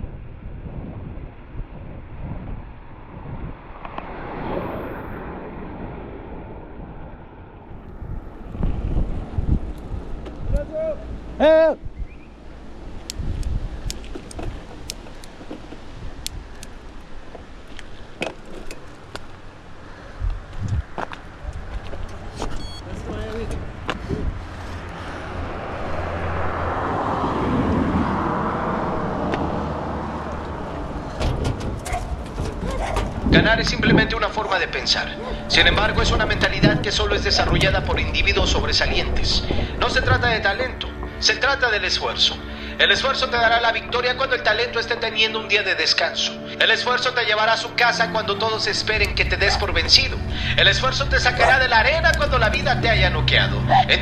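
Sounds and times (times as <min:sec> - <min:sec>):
wind buffeting microphone: 0:00.0 - 0:41.2, 0:48.8 - 0:54.0
vehicle passing by: 0:03.0 - 0:11.4, 0:19.0 - 0:43.8, 0:47.8 - 0:54.0.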